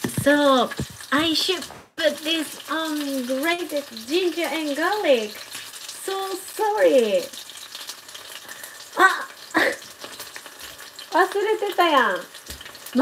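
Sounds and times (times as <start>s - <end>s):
person speaking: 0.0s - 5.3s
chicken sizzling in oil: 0.0s - 13.0s.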